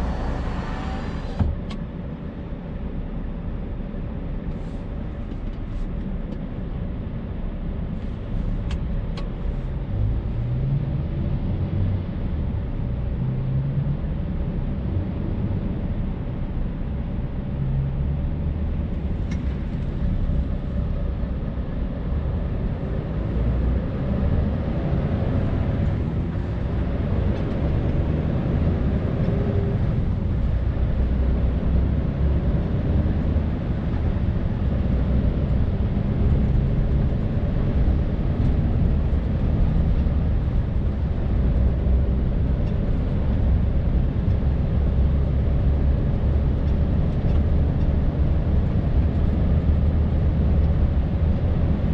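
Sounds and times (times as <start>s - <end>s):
diesel truck engine running: 0.0s - 1.7s
tyre and road noise: 0.0s - 2.2s.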